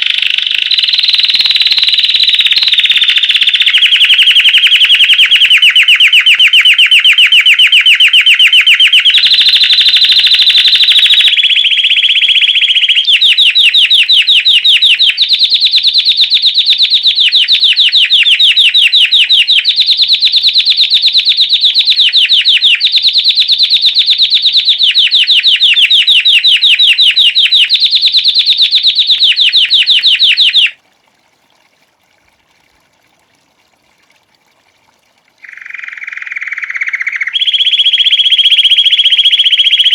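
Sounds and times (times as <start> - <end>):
canary singing trills: 0.0 - 30.8, 35.4 - 39.9.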